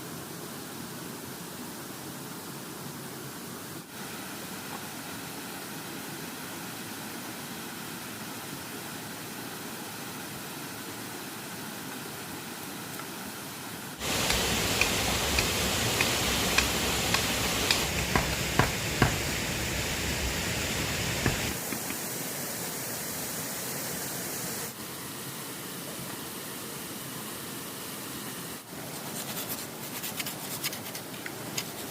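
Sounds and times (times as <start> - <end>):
sharp clicks and knocks: 14.0 - 19.4, 21.1 - 22.0
river water rushing: 14.0 - 22.3.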